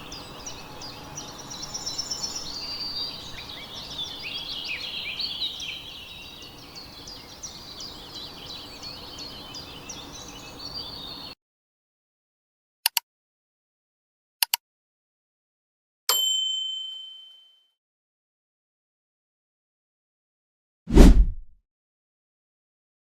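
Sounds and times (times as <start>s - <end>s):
small birds chirping and singing: 0.0s - 11.4s.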